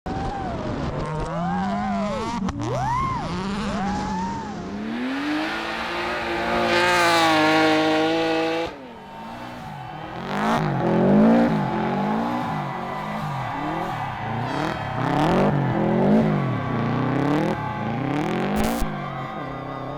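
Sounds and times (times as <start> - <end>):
rally car engines revving: 0.6 - 19.9.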